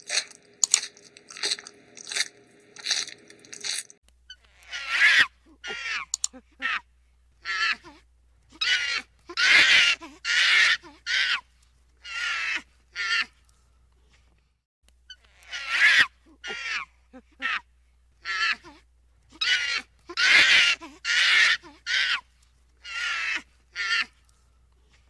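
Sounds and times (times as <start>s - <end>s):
loud animal calls: 0.0s - 6.8s, 8.5s - 11.4s, 12.0s - 13.3s, 15.1s - 17.6s, 19.3s - 24.1s.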